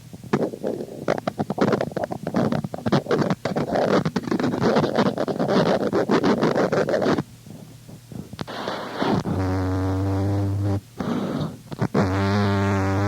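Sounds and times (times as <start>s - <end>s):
hiss: 8.1s - 13.0s.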